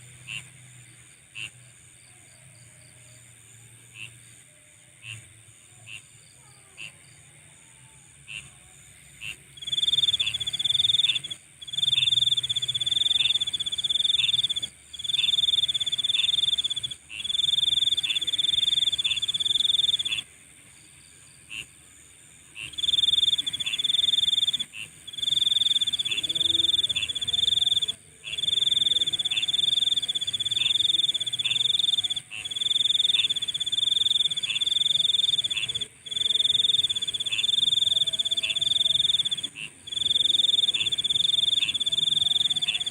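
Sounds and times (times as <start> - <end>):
high-pitched insect chorus: 0.1 - 42.9
shrill insect trilling: 9.3 - 20.3, 22.6 - 42.9.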